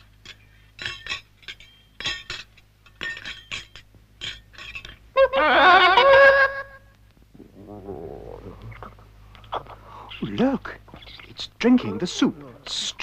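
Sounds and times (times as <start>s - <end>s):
light metallic clinks: 0.0s - 5.0s.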